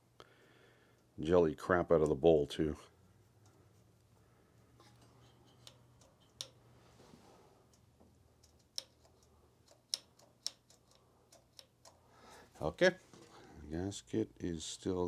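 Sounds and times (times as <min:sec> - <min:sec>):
small metal parts clicking: 0:08.4 - 0:12.1.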